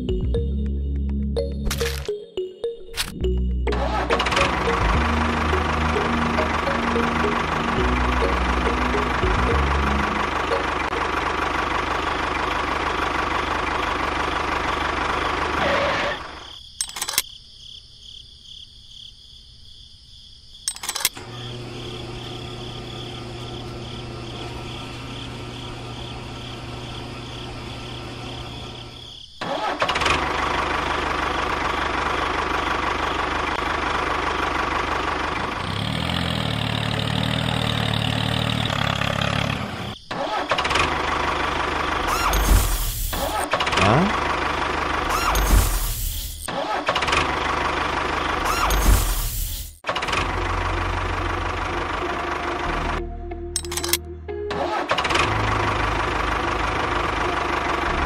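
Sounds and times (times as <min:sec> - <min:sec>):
clicks: 0:16.8 - 0:17.3, 0:53.6 - 0:54.1
small motors running: 0:41.8 - 0:43.6, 0:45.0 - 0:46.5, 0:48.2 - 0:49.8.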